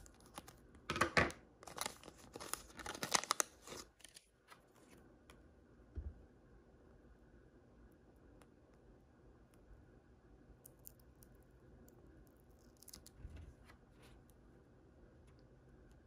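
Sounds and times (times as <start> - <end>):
packaging clicks and crinkles: 0.0 - 4.3.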